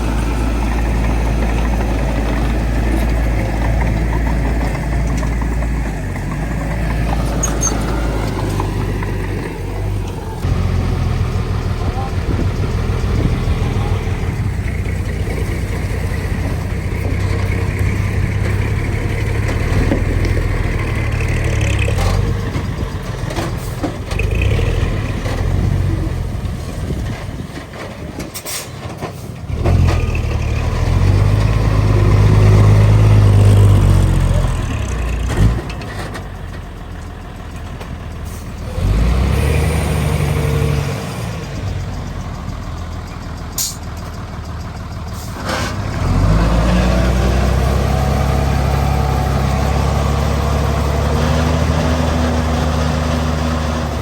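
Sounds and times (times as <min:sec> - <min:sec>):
heavy diesel machinery rumbling: 0:00.0 - 0:54.0.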